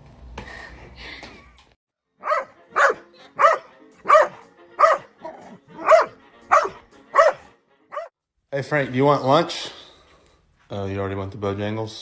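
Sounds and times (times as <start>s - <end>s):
dog barking: 2.2s - 8.1s.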